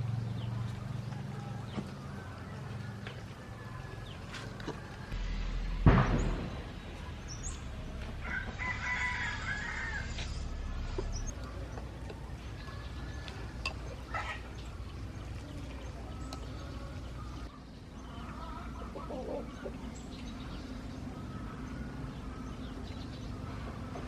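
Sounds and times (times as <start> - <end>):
sharp thump: 5.1 - 8.2
rooster crowing: 8.1 - 11.3.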